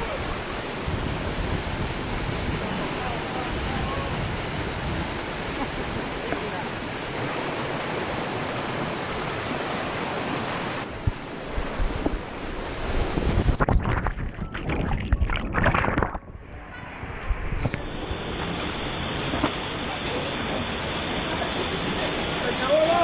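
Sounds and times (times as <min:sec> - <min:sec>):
waterfall rushing: 0:00.0 - 0:13.6, 0:17.8 - 0:23.0
water splashing and churning: 0:00.0 - 0:16.4.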